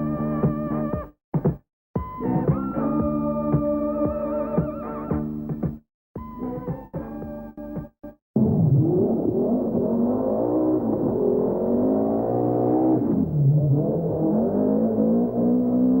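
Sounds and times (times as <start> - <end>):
rally car engine accelerating: 8.4 - 16.0.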